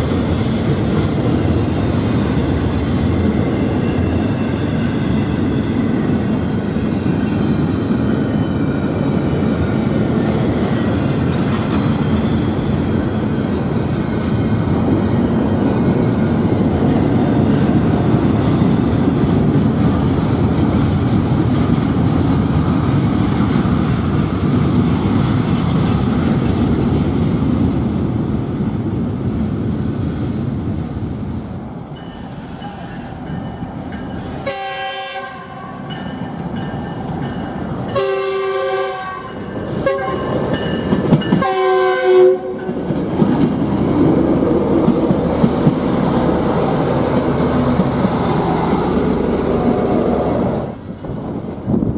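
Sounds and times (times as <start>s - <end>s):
train wheels rumbling on rails: 0.0s - 51.9s
locomotive air horn blasts: 34.4s - 35.8s, 38.0s - 40.3s, 41.4s - 42.6s.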